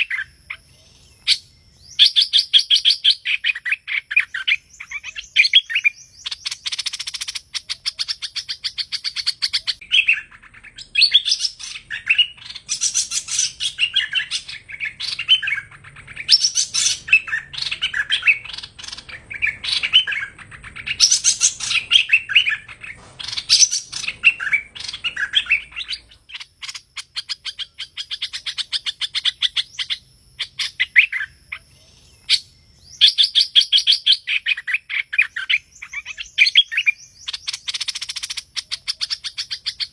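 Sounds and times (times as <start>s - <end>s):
bird singing whistled phrases: 0.0s - 39.9s
buzzy bird trills: 0.0s - 39.9s.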